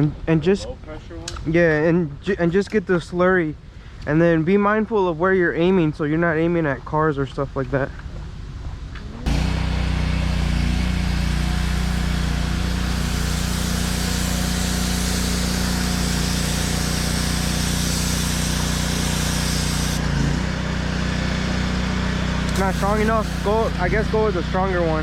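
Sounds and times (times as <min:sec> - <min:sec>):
water spray hissing: 0:09.3 - 0:20.1, 0:22.5 - 0:24.2
pressure washer engine running: 0:09.3 - 0:25.0.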